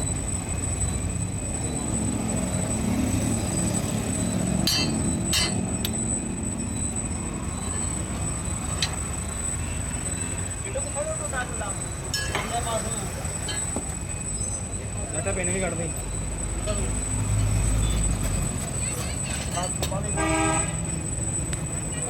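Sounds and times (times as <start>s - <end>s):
machinery droning: 0.0s - 18.9s
metal clanks: 4.6s - 6.0s, 8.7s - 9.2s, 12.1s - 13.9s.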